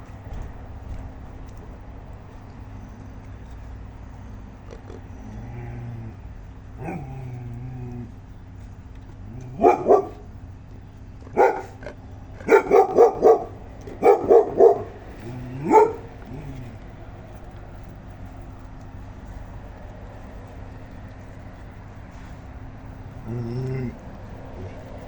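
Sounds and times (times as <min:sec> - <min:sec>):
dog barking: 0:09.5 - 0:10.3, 0:11.3 - 0:16.6.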